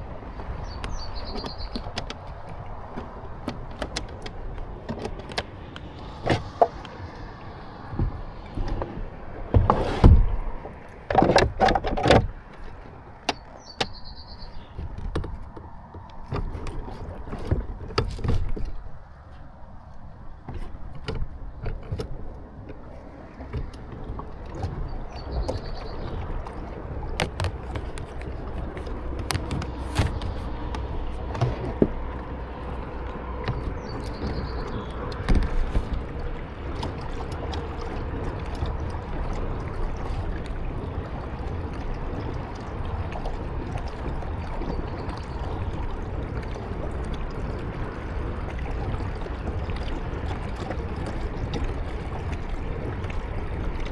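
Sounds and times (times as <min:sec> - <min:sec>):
steady low rumble: 0:00.0 - 0:11.1, 0:22.3 - 0:53.9
water splashes: 0:00.0 - 0:53.9
paddle knocking against kayak hull: 0:00.2 - 0:19.5, 0:20.4 - 0:53.9.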